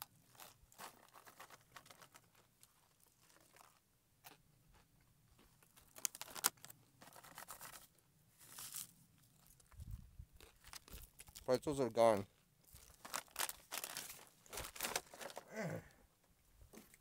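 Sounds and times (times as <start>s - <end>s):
crunching while eating: 0.0s - 11.5s, 12.3s - 16.0s
plastic packet crinkling: 0.3s - 3.8s, 5.8s - 9.8s, 10.4s - 11.5s, 12.7s - 15.5s.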